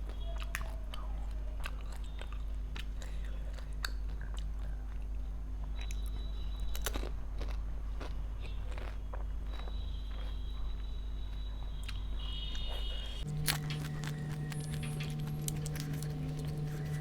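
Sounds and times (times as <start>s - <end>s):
crunchy chewing: 0.0s - 17.0s
steady hum: 13.0s - 17.0s.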